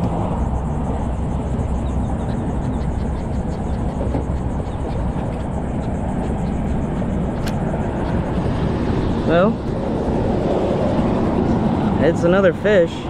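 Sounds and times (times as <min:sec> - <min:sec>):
wind buffeting microphone: 0:00.0 - 0:13.0
sharp click: 0:07.4 - 0:07.6.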